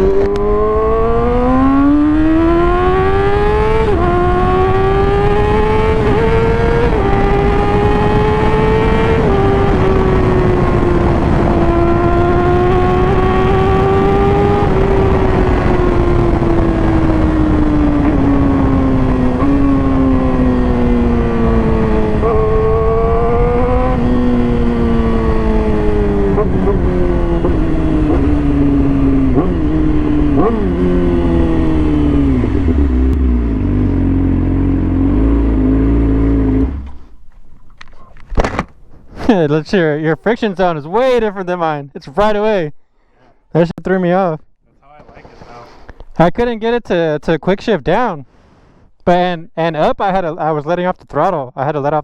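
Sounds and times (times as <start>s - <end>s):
wind rush: 0.0s - 33.9s
motorcycle engine revving: 0.0s - 37.2s.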